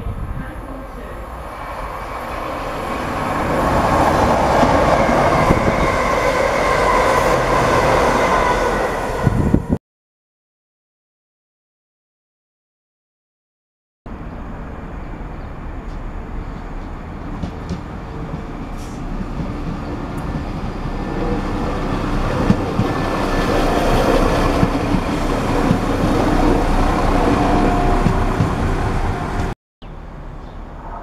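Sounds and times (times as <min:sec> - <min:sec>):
diesel train engine and wheels: 0:00.0 - 0:09.7, 0:14.1 - 0:31.0
train wheel knocks: 0:16.8 - 0:18.5, 0:22.4 - 0:23.0, 0:23.9 - 0:26.1, 0:28.0 - 0:28.6.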